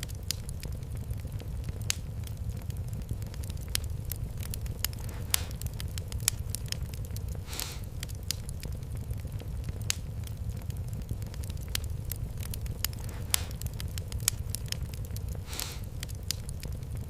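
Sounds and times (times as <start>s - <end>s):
low fire rumble: 0.0s - 17.0s
wood fire crackling and popping: 0.0s - 17.0s
short hiss from fire: 4.4s - 6.4s, 7.3s - 8.1s, 12.8s - 13.7s, 15.3s - 16.4s.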